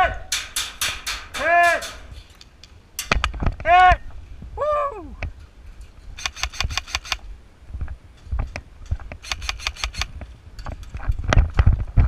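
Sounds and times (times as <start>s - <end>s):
scattered knocks: 0.3s - 2.3s
airsoft rifle full-auto bursts: 6.2s - 7.2s, 9.2s - 10.1s.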